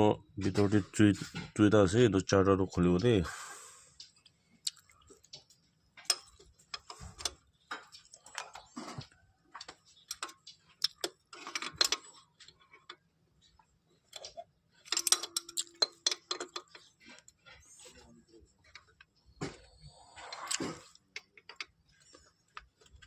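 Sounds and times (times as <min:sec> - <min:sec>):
hand tools clicking and clinking: 0:14.1 - 0:17.8.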